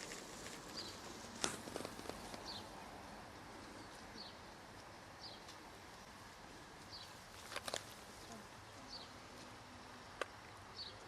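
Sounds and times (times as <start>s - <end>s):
bird chirping: 0.0s - 1.2s, 2.2s - 2.9s, 3.6s - 4.6s, 5.2s - 6.1s, 6.8s - 7.2s, 7.9s - 9.2s, 9.8s - 11.0s
faint outdoor background noise: 0.0s - 11.0s.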